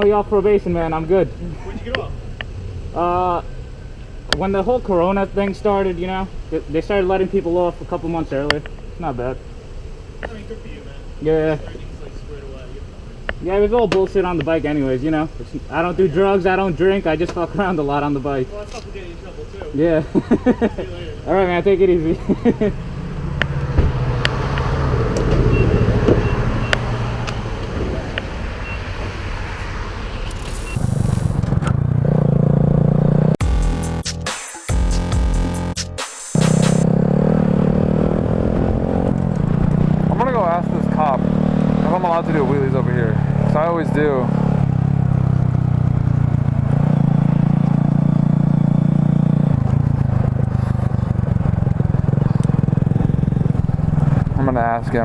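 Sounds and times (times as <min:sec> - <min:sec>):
road noise: 0:00.0 - 0:34.3, 0:34.9 - 0:55.0
motorcycle engine running: 0:36.4 - 0:54.7.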